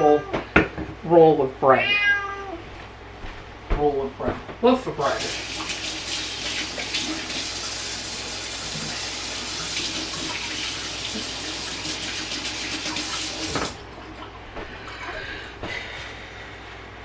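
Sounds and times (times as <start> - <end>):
tap water running into sink: 5.2 - 14.4.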